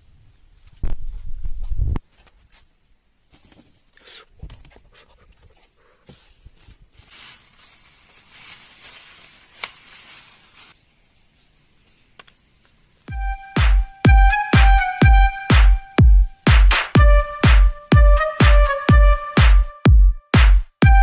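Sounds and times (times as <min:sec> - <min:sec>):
plastic bag and tissue crinkling: 0:06.1 - 0:10.8.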